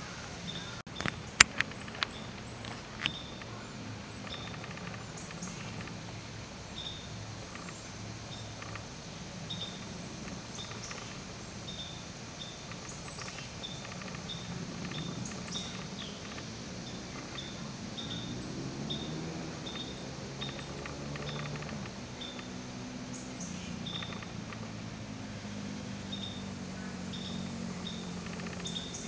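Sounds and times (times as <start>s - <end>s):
steady low hum: 0.0s - 29.0s
small bird chirping: 0.4s - 29.0s.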